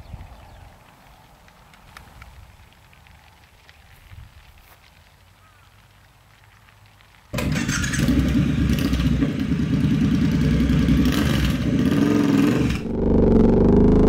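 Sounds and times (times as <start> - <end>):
motorcycle engine running: 7.4 - 14.0.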